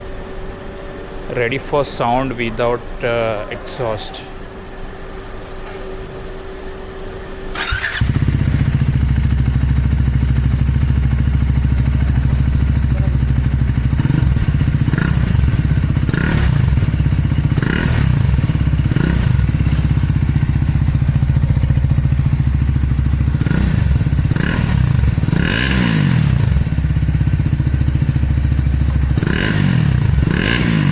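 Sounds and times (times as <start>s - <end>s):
unmuffled motorcycle engine revving: 7.5s - 30.9s.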